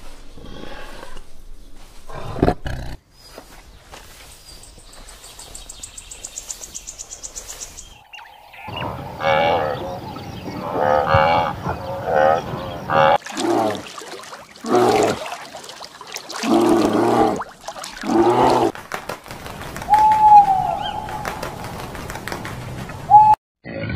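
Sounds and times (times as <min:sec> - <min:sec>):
low moo-like calls: 0:09.2 - 0:13.8.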